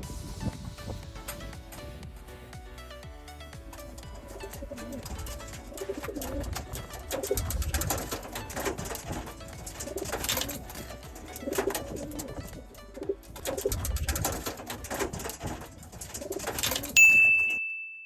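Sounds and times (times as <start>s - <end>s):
clicks and rustles: 3.7s - 17.0s
pigeons cooing: 4.2s - 17.0s
bright ding: 17.0s - 18.0s.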